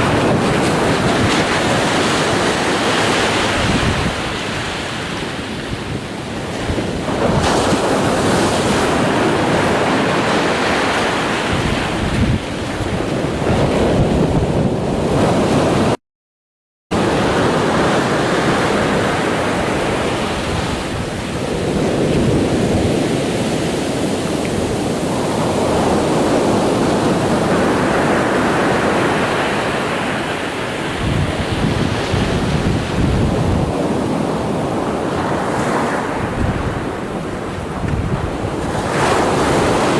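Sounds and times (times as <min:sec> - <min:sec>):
ocean waves breaking: 0:00.0 - 0:16.0, 0:17.0 - 0:39.9.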